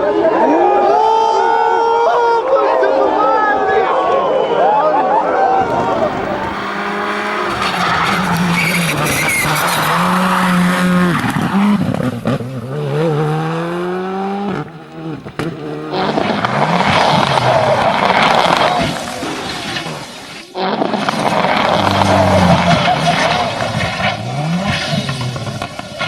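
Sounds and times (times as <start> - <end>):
tyre skid noise: 5.6 - 20.2, 21.1 - 26.0
rally car engine revving: 5.6 - 26.0.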